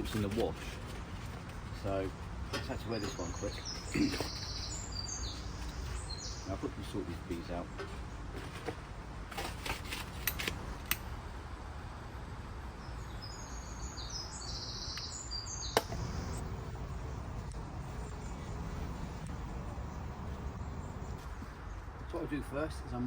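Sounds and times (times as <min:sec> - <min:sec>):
small birds chirping: 0:00.0 - 0:08.8, 0:12.8 - 0:23.0
steady low rumble: 0:15.9 - 0:22.4.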